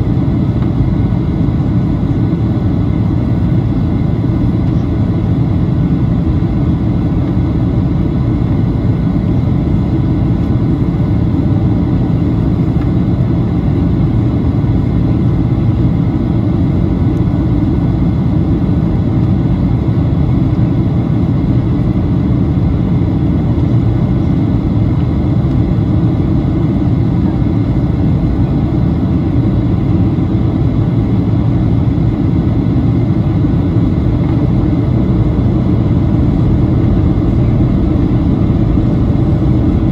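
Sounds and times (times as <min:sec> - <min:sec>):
airplane cabin engine rumble: 0:00.0 - 0:39.9
faint steady whines: 0:00.0 - 0:39.9
airflow past fuselage: 0:32.1 - 0:39.9.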